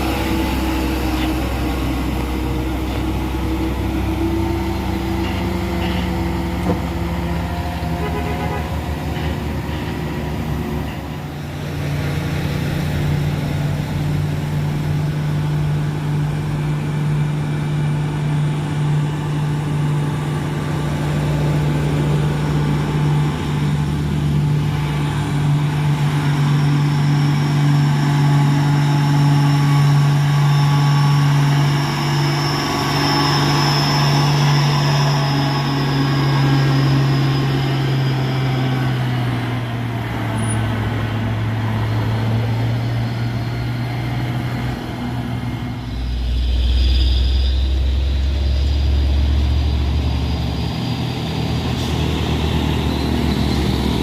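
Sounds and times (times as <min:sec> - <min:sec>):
heavy truck engine running: 0:00.0 - 0:54.0.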